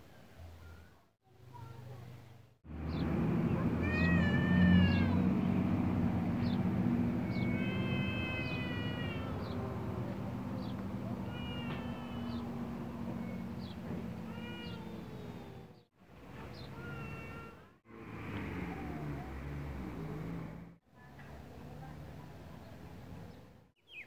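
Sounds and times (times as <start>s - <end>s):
birds with squeaky calls: 23.8s - 24.0s.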